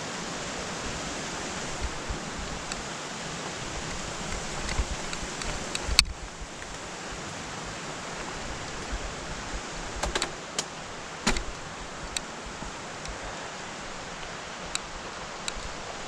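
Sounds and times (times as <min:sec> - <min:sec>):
bicycle riding rushing noise: 0:00.0 - 0:16.0
sharp clicks and knocks: 0:10.0 - 0:12.2.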